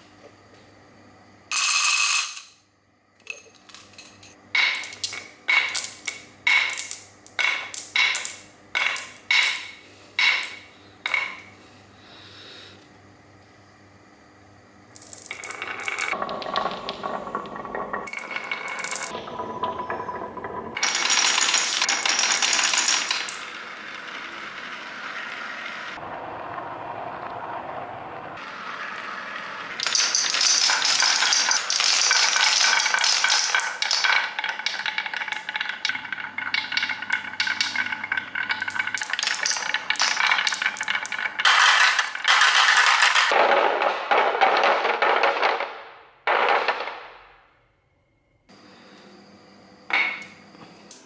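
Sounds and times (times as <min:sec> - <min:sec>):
glass marbles clattering on track: 0:01.5 - 0:02.6, 0:03.2 - 0:11.5, 0:14.9 - 0:24.8, 0:29.7 - 0:47.3.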